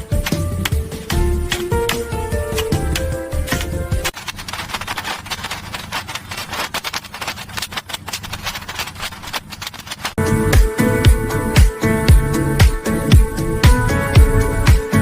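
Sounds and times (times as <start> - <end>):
music: 0.0 - 4.1, 10.2 - 15.0
scraping with rapid clicks: 0.0 - 10.2.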